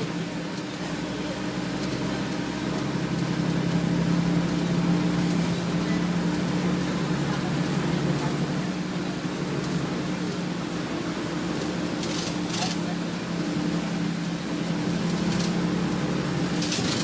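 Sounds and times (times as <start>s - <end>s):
bus diesel engine droning: 0.0s - 17.0s
road noise: 0.0s - 17.0s.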